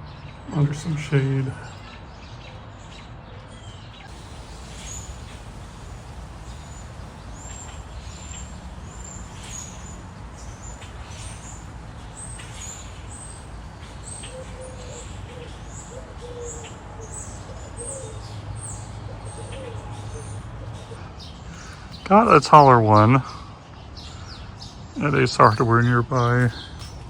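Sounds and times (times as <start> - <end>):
small birds chirping: 3.6 - 27.0
lower short repeated bird call: 4.1 - 17.2
low background rumble: 4.1 - 17.4.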